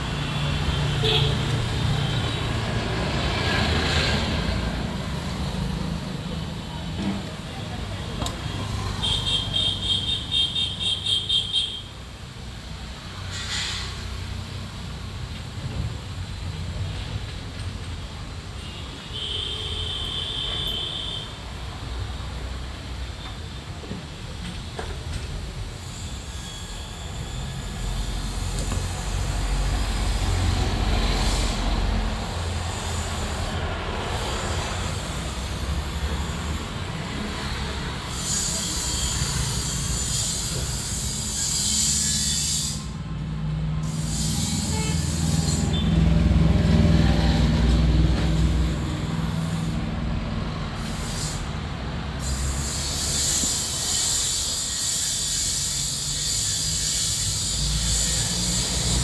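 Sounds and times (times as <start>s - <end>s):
vehicle rumble: 42.8s - 53.8s.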